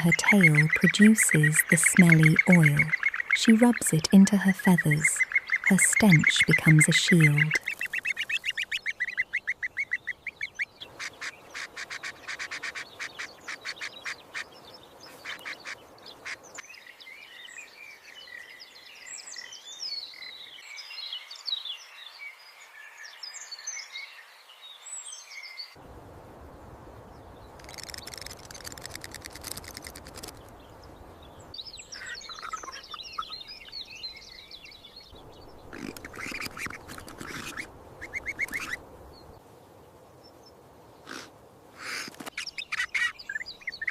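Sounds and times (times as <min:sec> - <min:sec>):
high twittering bird chirps: 0:00.0 - 0:10.9, 0:31.6 - 0:38.8, 0:42.4 - 0:43.9
harsh pulsed bird calls: 0:00.0 - 0:16.6, 0:31.3 - 0:38.8, 0:41.0 - 0:43.9.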